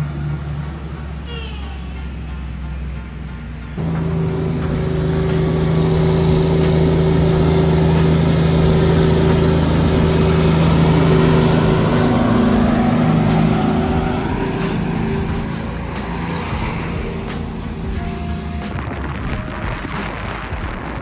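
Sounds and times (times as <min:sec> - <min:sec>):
truck engine running: 0:03.8 - 0:18.7.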